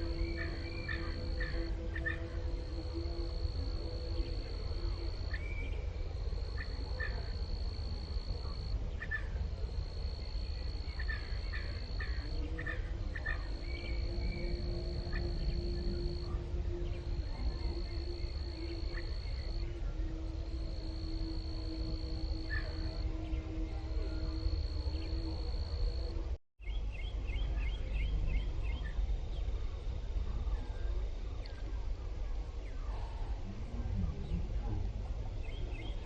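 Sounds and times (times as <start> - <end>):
insect trilling: 0.0 - 5.4, 9.7 - 26.1
steady low rumble: 0.0 - 36.0.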